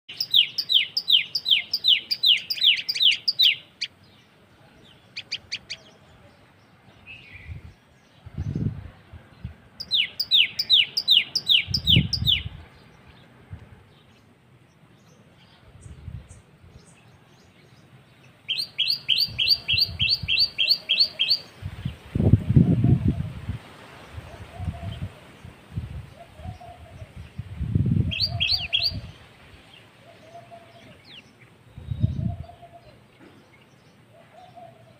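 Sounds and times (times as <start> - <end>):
bird calling sharp repeated notes: 0.1 - 4.0, 18.5 - 21.5.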